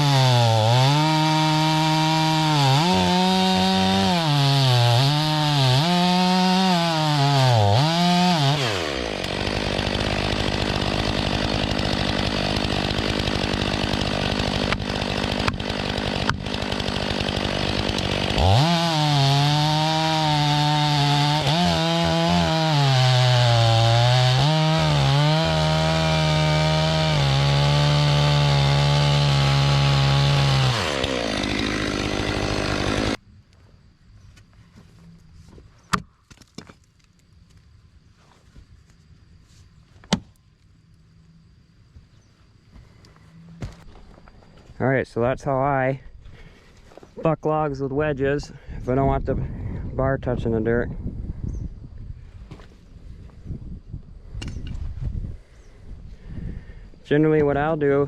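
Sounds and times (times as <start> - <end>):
chainsaw cutting log: 0.0 - 33.2, 40.0 - 40.4, 43.6 - 44.3
chainsaw idling: 0.0 - 33.2.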